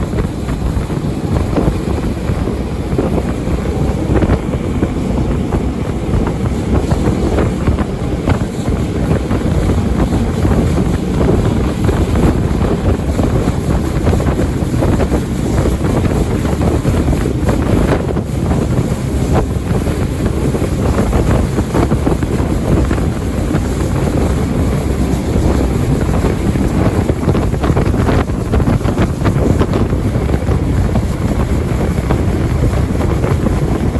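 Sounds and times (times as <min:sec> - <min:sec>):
boat engine running: 0:00.0 - 0:33.9
wind buffeting microphone: 0:00.0 - 0:33.9.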